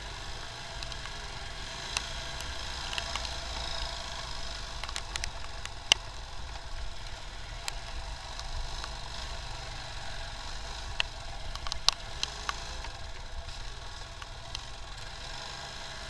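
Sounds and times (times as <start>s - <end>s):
motorcycle engine rumble: 0.0s - 16.0s
raindrops hitting camera: 0.7s - 9.4s.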